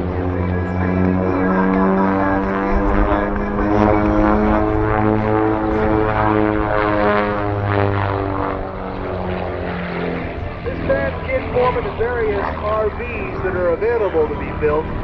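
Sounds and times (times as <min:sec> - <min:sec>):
propeller plane engines: 0:00.0 - 0:15.0.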